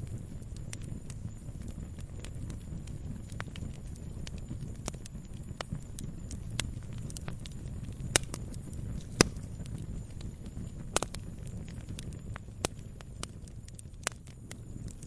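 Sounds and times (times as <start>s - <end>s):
campfire crackling and popping: 0.0s - 15.0s
low steady rumble: 0.0s - 15.0s.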